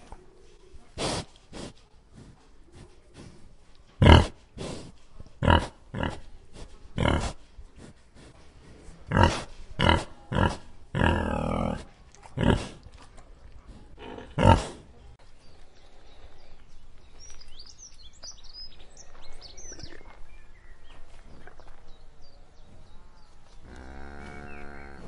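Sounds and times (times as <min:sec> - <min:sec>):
pig grunting: 0:04.0 - 0:04.4, 0:05.4 - 0:06.3, 0:07.0 - 0:07.4, 0:09.1 - 0:12.8, 0:13.9 - 0:14.9
birds chirping faintly: 0:13.2 - 0:25.0.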